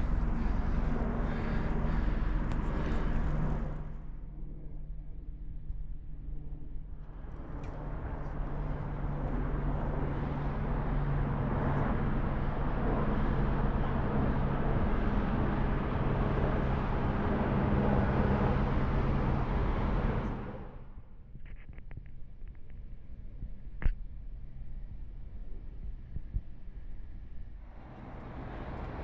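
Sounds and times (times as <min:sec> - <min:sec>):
low engine hum: 0:00.0 - 0:29.0
traffic rushing: 0:27.7 - 0:29.0.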